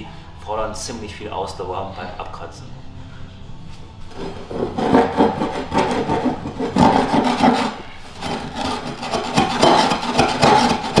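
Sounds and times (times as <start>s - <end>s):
scraper rasping over wooden floor: 4.1s - 11.0s.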